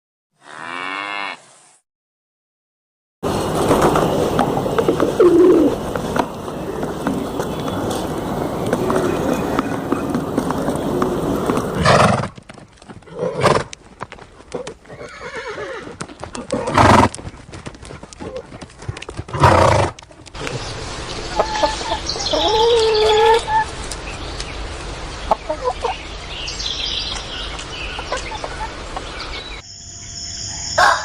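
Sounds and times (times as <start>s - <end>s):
hooves clip-clopping: 3.3s - 25.4s, 26.7s - 29.5s
horse calls: 4.1s - 17.3s
farm animal calls: 21.3s - 23.8s.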